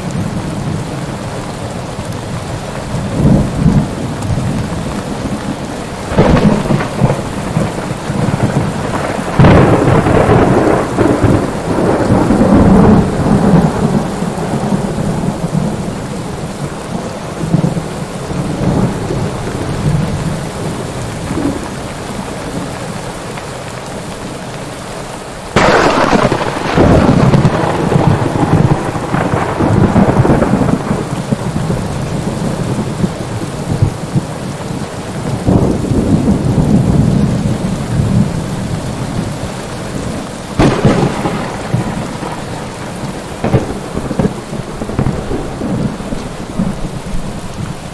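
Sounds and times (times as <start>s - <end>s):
steady rain: 0.0s - 47.9s
thunder rumbling: 2.4s - 22.8s, 25.5s - 47.9s
loud thunderclap: 5.2s - 15.8s, 25.6s - 34.3s, 35.2s - 38.4s, 40.6s - 47.3s.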